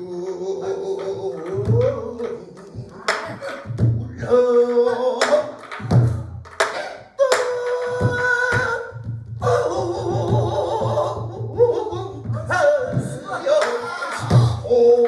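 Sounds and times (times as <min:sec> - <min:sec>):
person singing long wavering notes: 0:00.0 - 0:05.6, 0:07.2 - 0:15.0.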